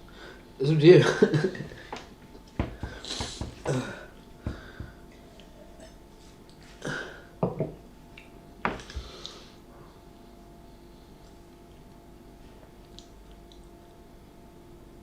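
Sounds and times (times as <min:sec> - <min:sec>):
faint steady hum: 0:00.0 - 0:15.0
small knocks: 0:02.6 - 0:03.7.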